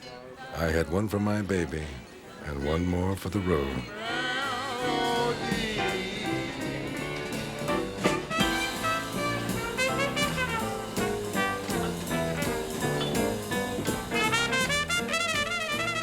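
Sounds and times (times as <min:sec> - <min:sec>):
jazz brass and saxophone: 0:04.1 - 0:16.0.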